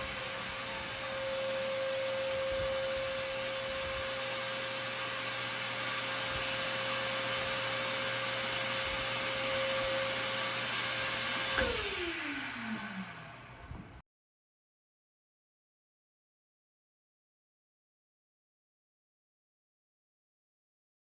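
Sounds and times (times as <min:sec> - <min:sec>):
rushing air: 0:00.0 - 0:13.0
electric motor whining: 0:00.0 - 0:13.6.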